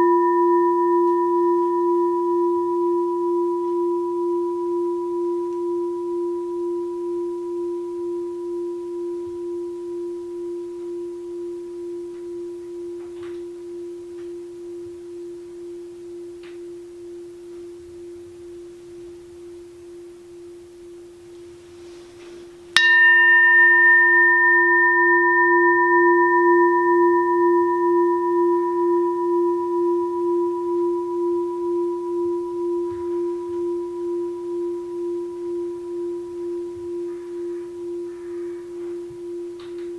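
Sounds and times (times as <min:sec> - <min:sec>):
bowl bell strike: 0:00.0 - 0:22.0, 0:22.7 - 0:39.9
bowl bell ringing: 0:00.0 - 0:39.9.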